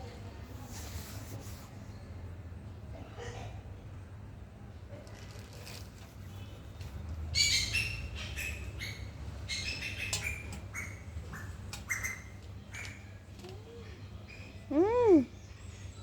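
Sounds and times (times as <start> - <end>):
birds squawking and chirping: 7.3 - 16.0.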